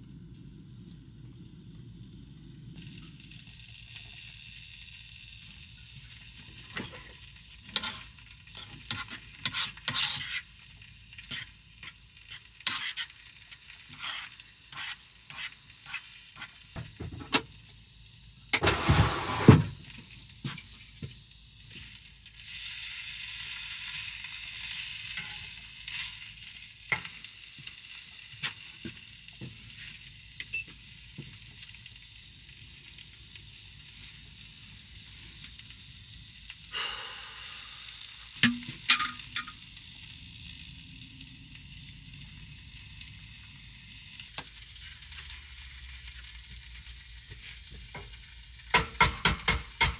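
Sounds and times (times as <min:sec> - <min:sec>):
food sizzling in a frying pan: 0:00.0 - 0:49.9
utensil stirring and scraping: 0:07.7 - 0:16.6, 0:18.6 - 0:19.6
utensil clattering against pan: 0:48.8 - 0:49.9.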